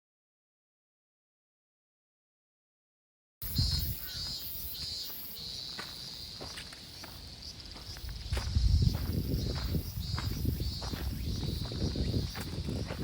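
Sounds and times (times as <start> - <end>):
insects trilling: 3.4 - 13.0.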